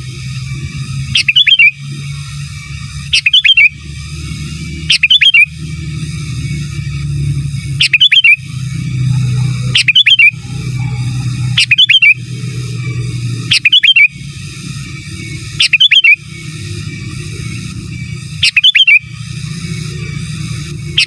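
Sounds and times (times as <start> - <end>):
bird singing whistled notes: 1.0 - 5.8, 7.6 - 12.6, 13.3 - 14.3, 15.5 - 16.6, 18.4 - 19.2
low rumble: 8.4 - 13.5.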